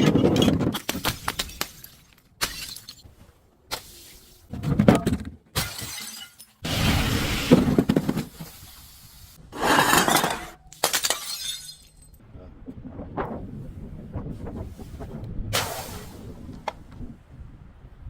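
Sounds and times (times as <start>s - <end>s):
glass crushing and shattering: 0.0s - 3.1s, 5.6s - 6.9s, 9.8s - 12.2s.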